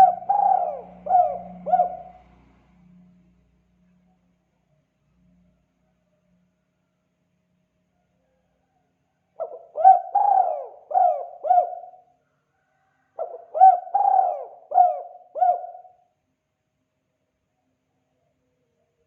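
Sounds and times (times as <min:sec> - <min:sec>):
dove cooing: 0:00.0 - 0:02.4, 0:09.4 - 0:12.1, 0:13.2 - 0:16.0.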